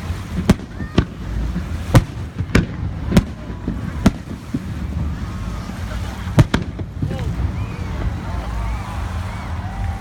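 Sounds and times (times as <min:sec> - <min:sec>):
fireworks bangs: 0:00.0 - 0:08.2
steady low rumble: 0:00.0 - 0:10.0
faint fireworks pops: 0:00.2 - 0:05.2, 0:06.3 - 0:07.3.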